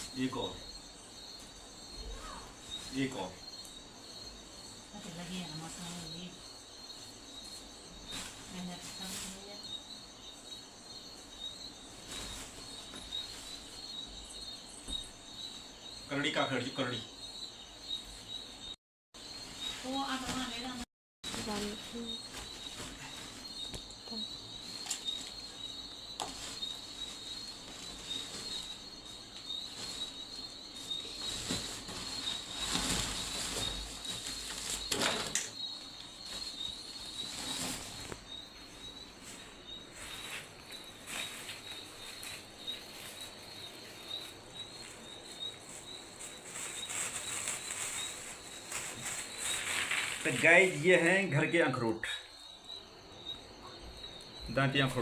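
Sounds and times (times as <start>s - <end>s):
background hiss: 0.0s - 55.0s
rapid high chirping: 9.0s - 55.0s
knocks and rustles: 26.2s - 38.3s.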